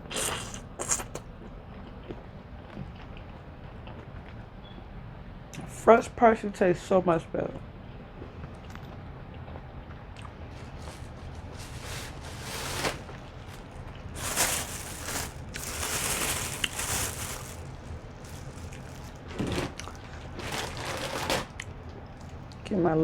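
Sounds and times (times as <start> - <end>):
close eating sounds: 0.0 - 4.4, 9.4 - 22.7
food and wrappings crackling: 10.2 - 22.6.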